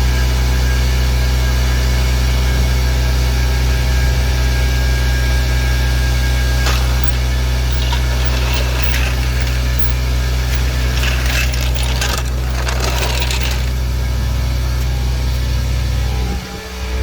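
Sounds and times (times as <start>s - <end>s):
metal clinking and rattling: 6.5s - 14.8s.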